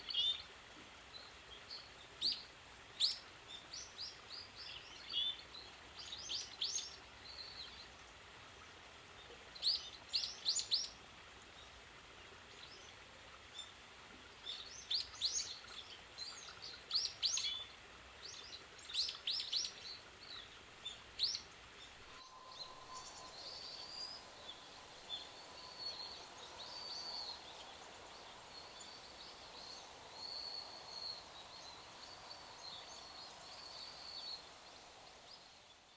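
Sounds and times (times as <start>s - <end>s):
faint steady tone: 12.5s - 35.9s
soft wavering bird calls: 21.3s - 34.7s.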